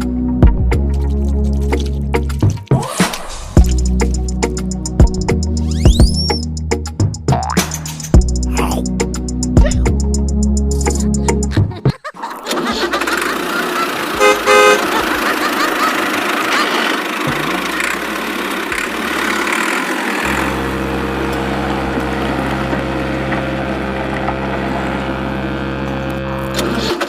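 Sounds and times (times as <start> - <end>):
engine humming: 0.0 - 27.0
vehicle horn beeping: 14.2 - 15.0.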